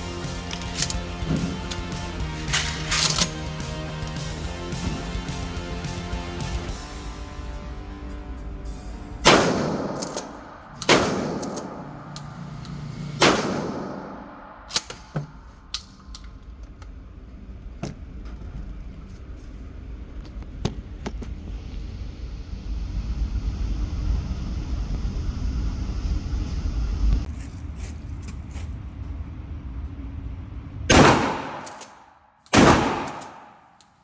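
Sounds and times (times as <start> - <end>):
shotgun shots echoing: 9.2 - 12.1, 13.2 - 15.1, 30.9 - 33.8.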